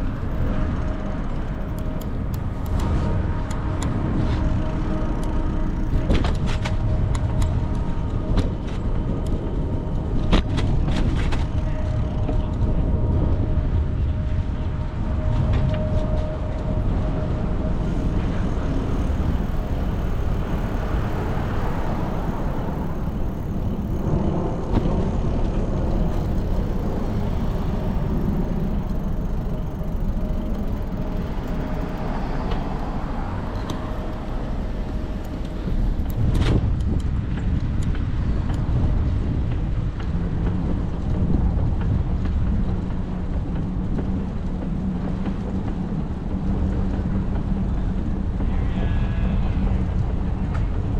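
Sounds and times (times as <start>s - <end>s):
wind and road noise: 0.0s - 50.9s
cars passing: 14.4s - 40.2s.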